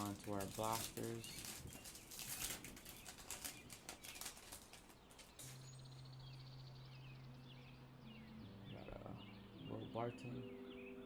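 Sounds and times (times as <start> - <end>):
packaging crinkling and tearing: 0.0 - 5.8.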